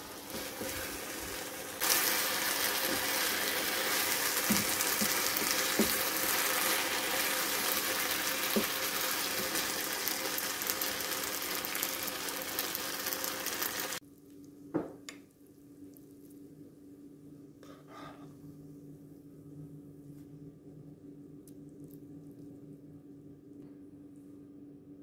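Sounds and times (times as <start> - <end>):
noodles sizzling in a frying pan: 0.0 - 14.0
spatula knocking on pan: 4.4 - 6.2.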